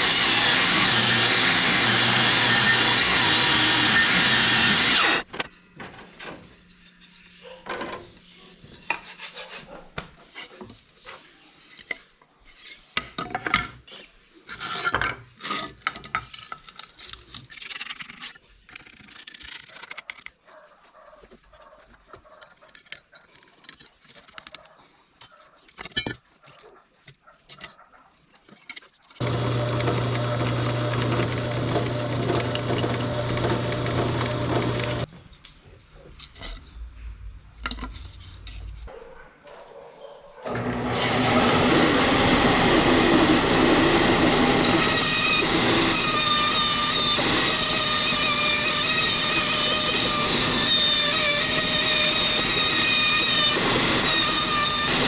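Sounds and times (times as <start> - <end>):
loud electric machine running: 0.0 - 5.3, 29.2 - 35.1, 40.5 - 55.0
filing or sanding strokes: 8.8 - 10.5.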